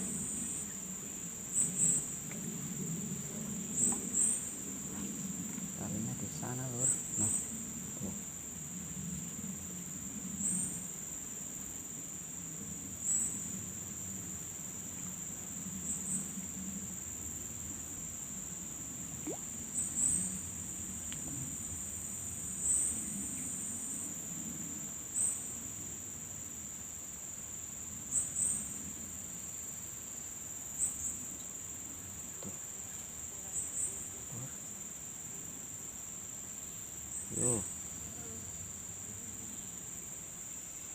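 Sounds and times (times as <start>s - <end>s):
insect chirp: 0.0s - 40.9s
insects droning: 0.0s - 40.9s.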